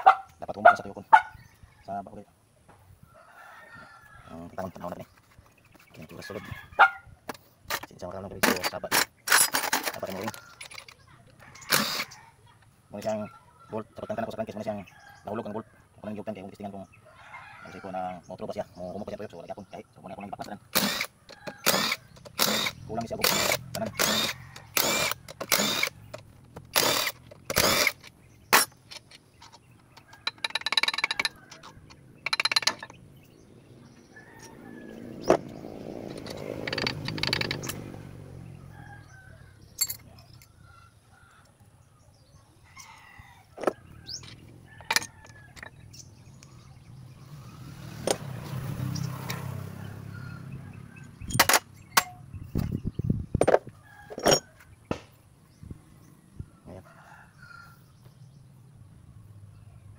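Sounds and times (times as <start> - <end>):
metal tools clinking: 7.7 - 11.0, 22.2 - 33.0, 39.8 - 40.6, 53.4 - 54.5
short rasping bursts: 11.6 - 12.1, 20.7 - 26.1, 26.7 - 28.8.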